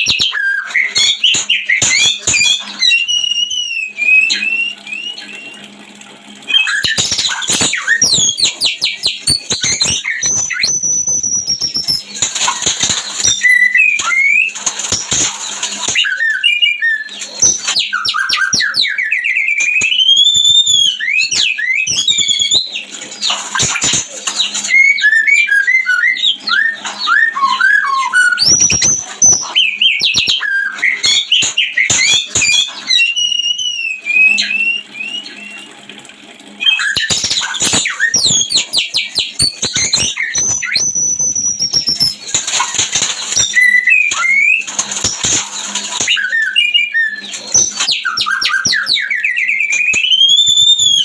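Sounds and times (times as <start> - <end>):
bird song with whistles and chirps: 0.0 - 5.8, 6.5 - 35.9, 36.5 - 51.0.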